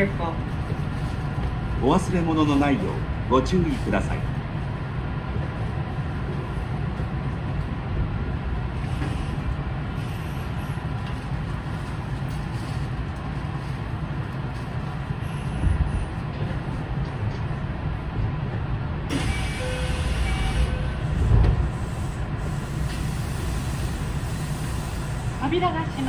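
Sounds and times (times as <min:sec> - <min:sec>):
train running rumble: 0:00.0 - 0:26.0
low thump of train halting: 0:19.1 - 0:21.9.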